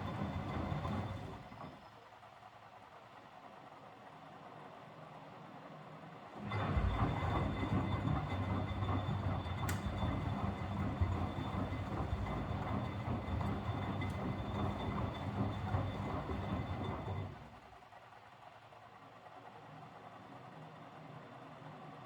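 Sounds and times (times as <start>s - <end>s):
washing machine drum rumbling: 0.0s - 1.5s, 6.4s - 17.6s.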